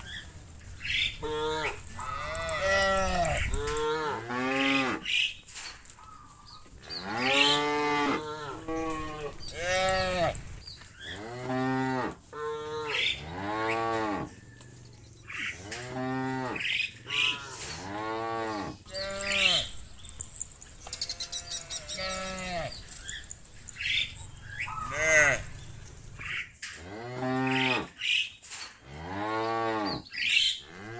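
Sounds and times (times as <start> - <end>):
cattle mooing: 0.9 - 5.1, 7.0 - 14.4, 15.3 - 27.9, 30.6 - 30.9.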